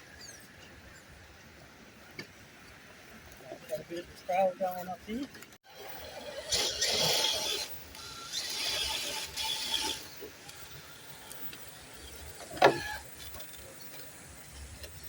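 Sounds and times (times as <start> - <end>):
electric motor and gears whining: 5.7 - 15.0.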